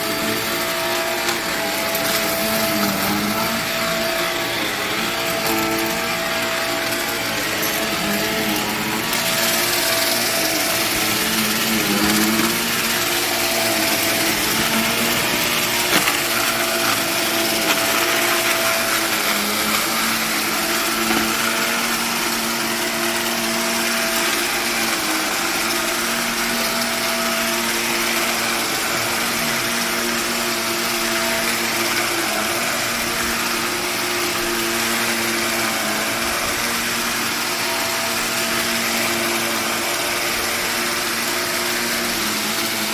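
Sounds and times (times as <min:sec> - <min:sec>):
carpet vacuum suction: 0:00.0 - 0:42.9.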